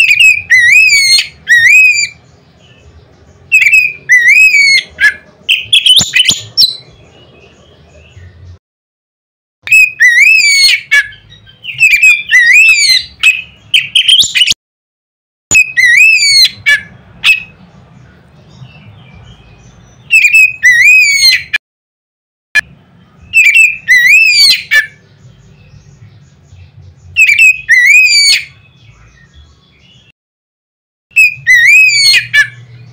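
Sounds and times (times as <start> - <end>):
bird song whistled phrases: 0.0 - 2.8, 3.5 - 6.9, 9.6 - 14.6, 15.5 - 17.6, 18.5 - 21.6, 22.6 - 30.1, 31.1 - 32.9.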